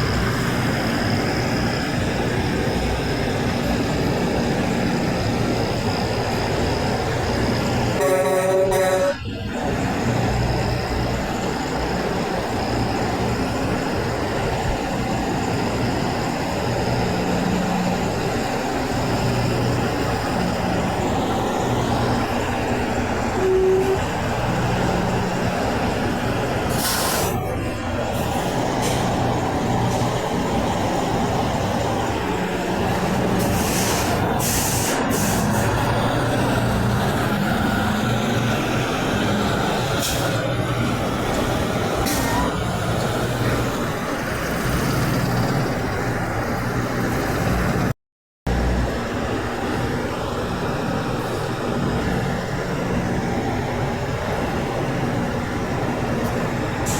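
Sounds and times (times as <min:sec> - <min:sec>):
truck diesel engines running: 0:00.0 - 0:56.9
air brakes hissing: 0:26.0 - 0:27.6, 0:28.2 - 0:45.7.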